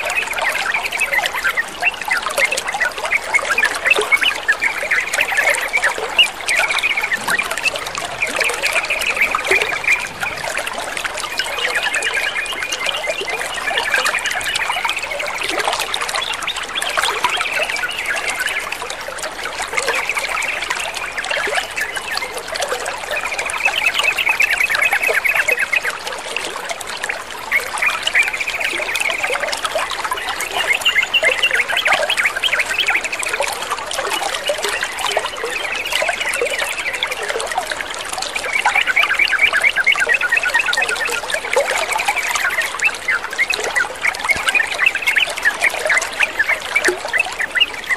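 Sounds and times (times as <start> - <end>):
birds chattering: 0.0 - 15.4
water trickling and splashing: 0.0 - 47.9.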